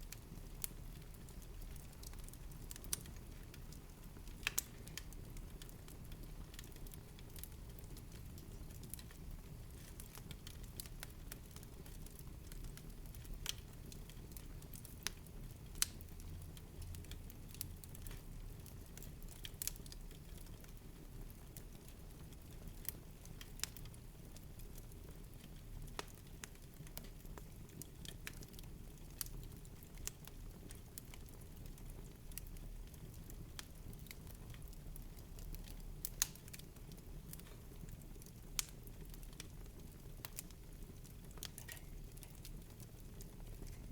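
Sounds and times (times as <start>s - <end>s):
low rumble of flames: 0.0s - 43.9s
wood fire crackling: 0.0s - 43.9s
sharp pops of fire: 4.4s - 5.0s.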